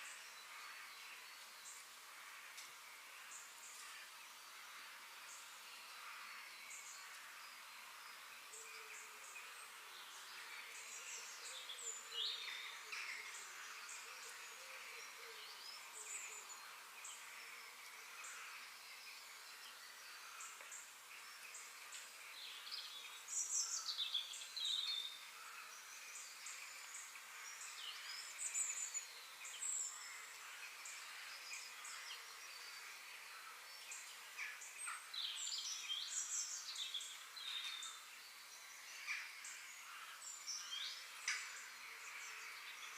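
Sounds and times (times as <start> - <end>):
high outdoor hiss: 0.0 - 42.9
small birds chirping: 0.0 - 42.9.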